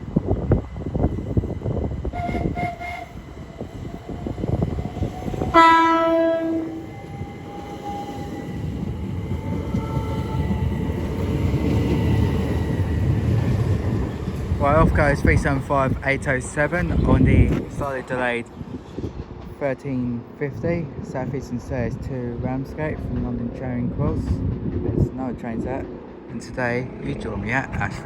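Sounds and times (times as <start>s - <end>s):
train whine: 0.0s - 19.5s
wheels rumbling on track: 0.0s - 28.0s
train horn: 2.1s - 3.2s, 5.5s - 6.8s.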